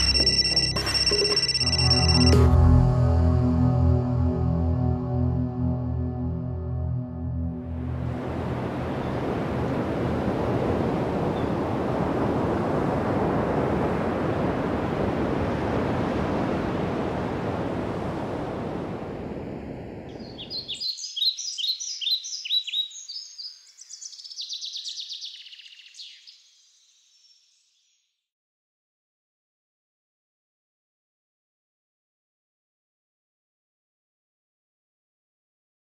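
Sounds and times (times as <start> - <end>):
sea surf: 7.7 - 20.2
small bird chirping: 20.1 - 28.0.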